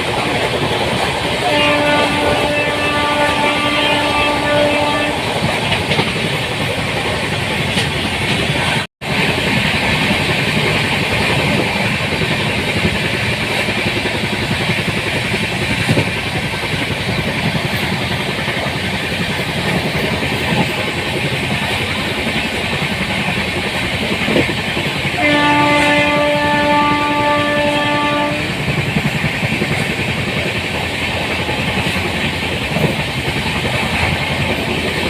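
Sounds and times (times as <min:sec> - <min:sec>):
train running with rail noise: 0:00.0 - 0:35.0
train horn: 0:01.4 - 0:05.7, 0:25.1 - 0:28.7.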